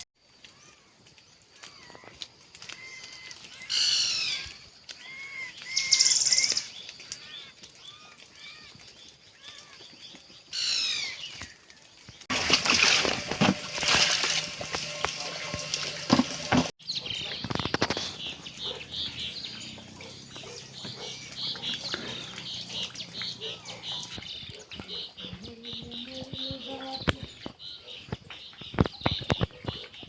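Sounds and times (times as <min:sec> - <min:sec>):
rough crackling noise: 0:00.0 - 0:30.0
birds chirping: 0:02.7 - 0:30.0
bird calls sweeping downward: 0:02.8 - 0:08.7
buzzy bird trill: 0:05.1 - 0:06.7.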